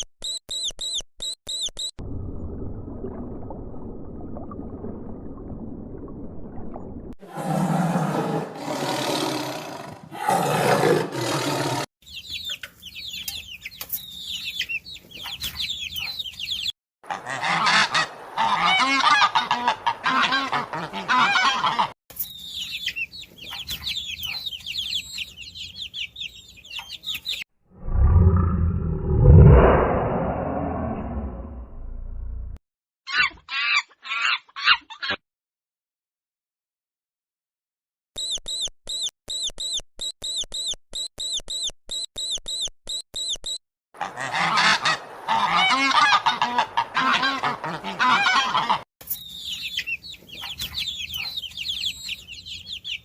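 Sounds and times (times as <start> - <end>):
waterfowl honking and chattering: 17.1 - 22.0, 44.0 - 48.8
loud low rumble: 27.8 - 32.6.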